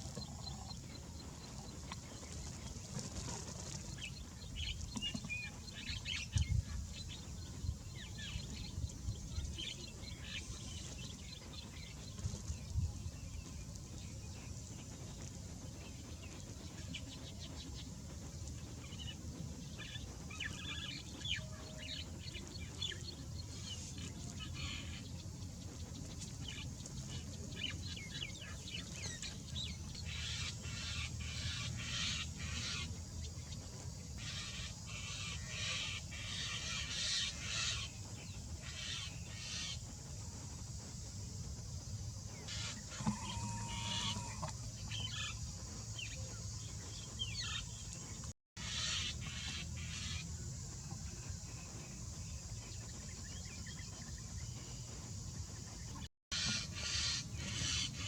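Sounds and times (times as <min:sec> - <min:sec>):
steady low rumble: 0:00.0 - 0:35.6
birds chattering: 0:42.4 - 0:50.3.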